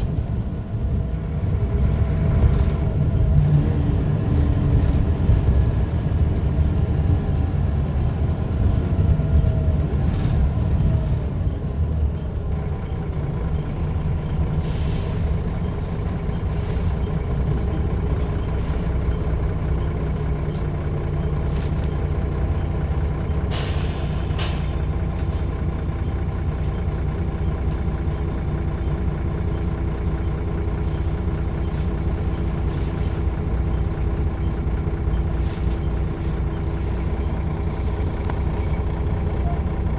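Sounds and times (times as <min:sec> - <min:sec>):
bus diesel engine running: 0:00.0 - 0:39.9
air brakes hissing: 0:14.6 - 0:17.1, 0:18.6 - 0:19.0, 0:23.5 - 0:25.0, 0:36.5 - 0:39.3.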